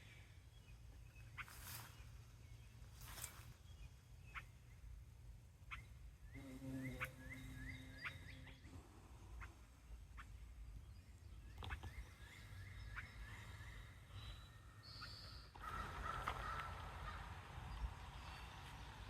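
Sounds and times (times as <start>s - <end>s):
bird chirping: 5.6s - 19.0s.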